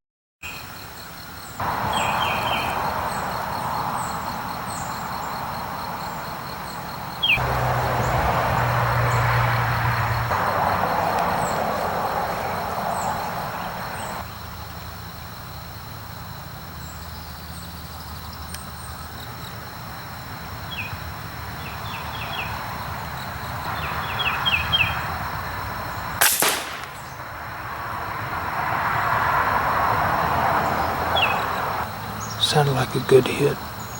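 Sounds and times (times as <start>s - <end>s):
birds chirping: 0.4s - 14.3s, 20.6s - 25.1s, 26.0s - 27.5s, 30.6s - 33.9s
outdoor background noise: 0.4s - 33.9s
suppressed rifle shot: 26.2s - 27.3s.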